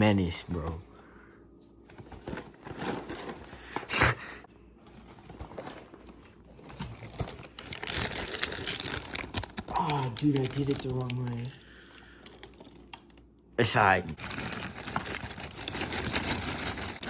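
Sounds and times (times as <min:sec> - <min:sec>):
cardboard and packaging rustling: 0:01.8 - 0:04.0, 0:04.8 - 0:13.2, 0:14.2 - 0:17.0.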